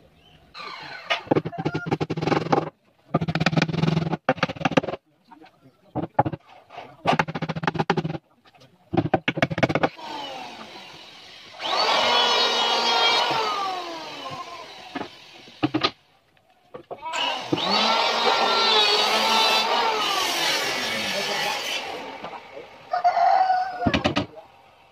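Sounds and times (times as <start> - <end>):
power tool motor running: 9.6 - 16.0, 17.2 - 22.5.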